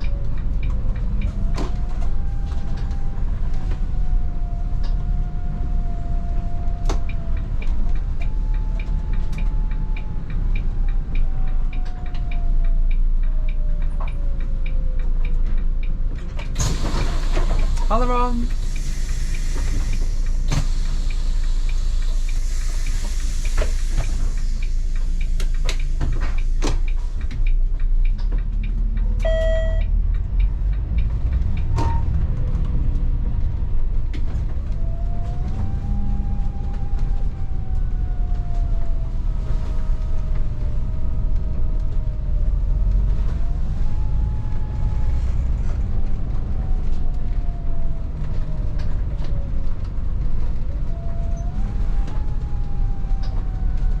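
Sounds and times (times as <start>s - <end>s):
clunks and rattles: 0.0s - 5.8s, 13.2s - 17.9s, 18.6s - 29.2s
bus engine rumble: 0.0s - 54.0s
short beep: 29.2s - 29.9s.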